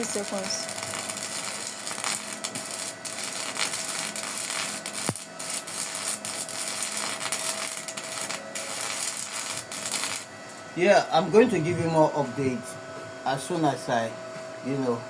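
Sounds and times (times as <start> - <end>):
welding arc crackling: 0.0 - 10.4.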